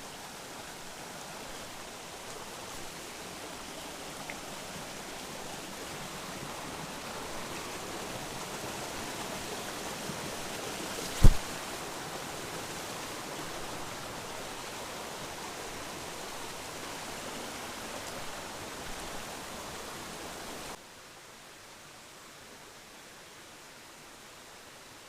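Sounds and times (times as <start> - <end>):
stream rushing: 0.0 - 25.0
sharp knock: 11.2 - 11.4.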